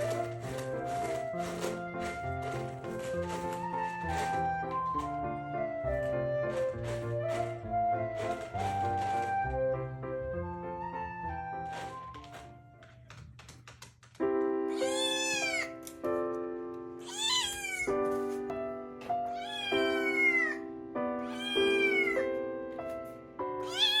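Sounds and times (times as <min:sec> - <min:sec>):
cat meowing: 0:14.7 - 0:15.8, 0:17.0 - 0:18.0, 0:19.3 - 0:20.6, 0:21.2 - 0:22.3, 0:23.6 - 0:24.0.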